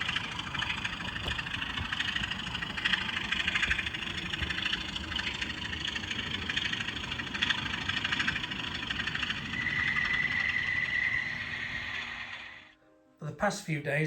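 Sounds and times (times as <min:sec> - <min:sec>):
model locomotive engine churn: 0:00.0 - 0:12.8
high whistle-like tone: 0:09.4 - 0:12.7.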